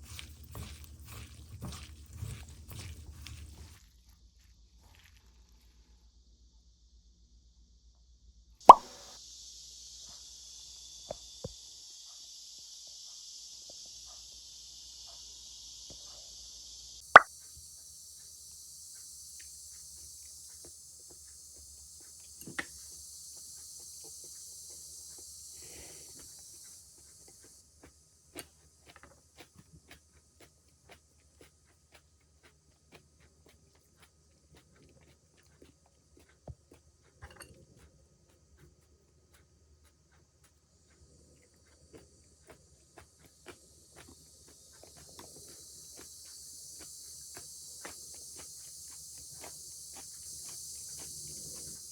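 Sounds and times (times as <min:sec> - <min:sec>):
cicada chorus drone: 0:08.8 - 0:51.9.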